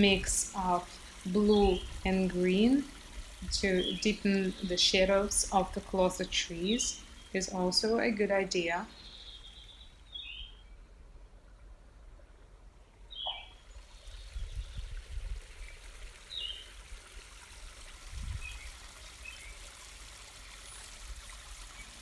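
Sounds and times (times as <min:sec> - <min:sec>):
faint steady hiss: 0:00.0 - 0:22.0
bird chirping: 0:06.2 - 0:10.9, 0:13.1 - 0:14.8.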